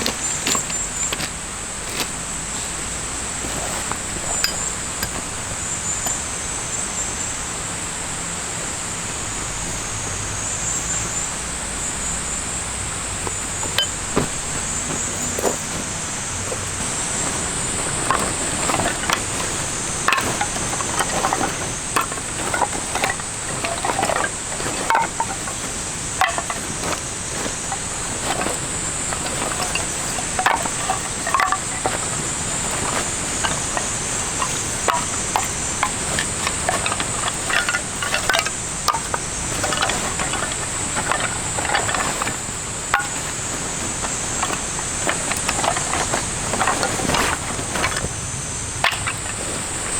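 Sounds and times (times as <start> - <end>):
insects droning: 0.0 - 49.9
light clicks and knocks: 13.2 - 48.1.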